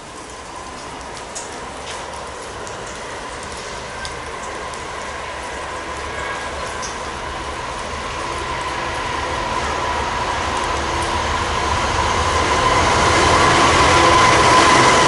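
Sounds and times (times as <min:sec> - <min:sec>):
diesel locomotive rumble: 0:00.0 - 0:15.0.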